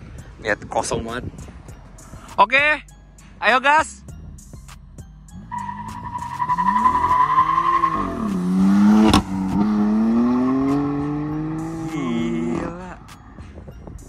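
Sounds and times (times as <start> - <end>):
car engine accelerating hard: 5.4 - 13.0
tyres squealing: 5.5 - 8.5.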